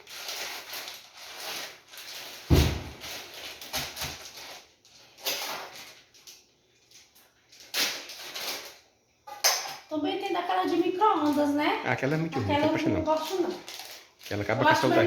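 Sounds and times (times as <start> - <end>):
plastic bag rustling: 0.0 - 8.9, 10.2 - 15.0
dull thump: 2.5 - 3.0.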